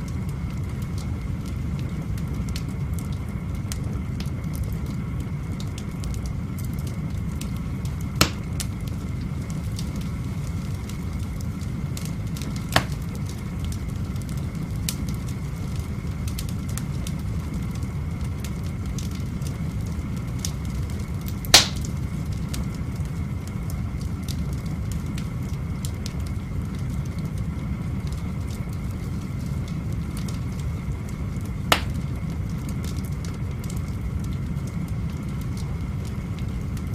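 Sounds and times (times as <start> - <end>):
fire rushing and crackling: 0.0 - 36.9
firewood sharp pops: 8.2 - 8.7, 12.7 - 13.1, 21.5 - 22.0, 31.7 - 32.1.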